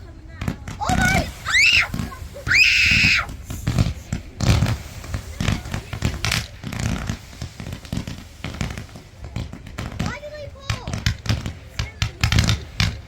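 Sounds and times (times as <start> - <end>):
fireworks popping and crackling: 0.0 - 13.0.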